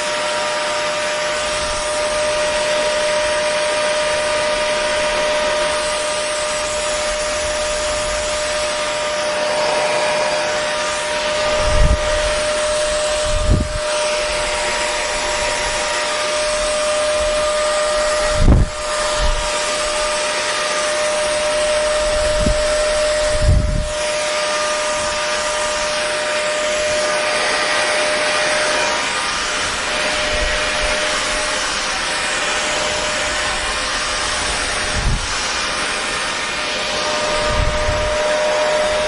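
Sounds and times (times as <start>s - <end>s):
hair dryer running: 0.0s - 39.0s.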